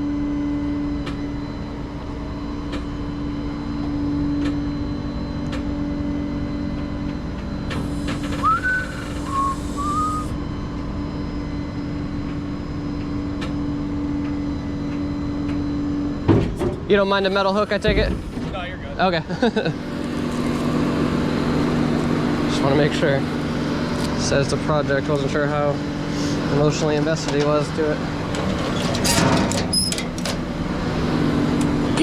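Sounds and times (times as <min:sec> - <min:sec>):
truck engine idling: 0:07.8 - 0:10.3
person whistling: 0:08.3 - 0:10.4.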